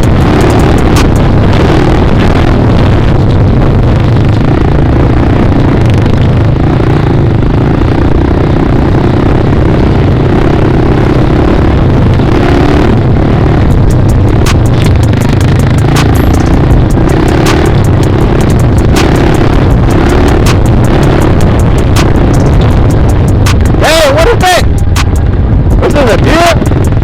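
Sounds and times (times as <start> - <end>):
sharp ticks: 0.0 - 2.6, 13.7 - 27.0
dirt bike engine running: 0.0 - 27.0.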